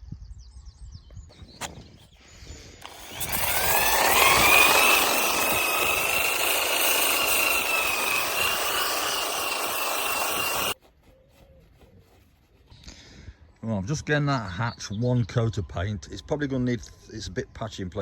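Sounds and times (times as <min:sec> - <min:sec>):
electric power sander whining: 0:02.8 - 0:10.8.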